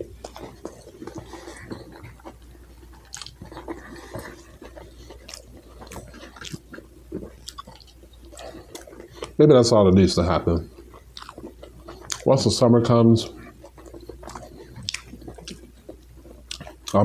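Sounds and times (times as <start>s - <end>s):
person chewing close to microphone: 0.0s - 17.0s.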